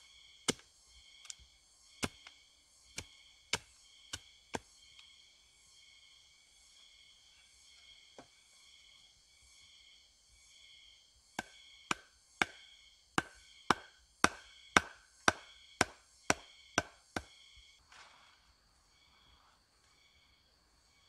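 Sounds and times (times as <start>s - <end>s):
tool striking wood: 11.4s - 12.6s, 13.2s - 17.3s.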